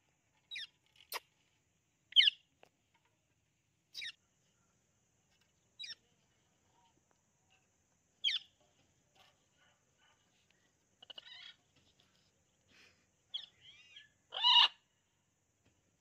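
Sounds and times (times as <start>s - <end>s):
parrot chattering and warbling: 4.0s - 4.2s, 11.0s - 11.6s
parrot squawking: 13.4s - 14.8s.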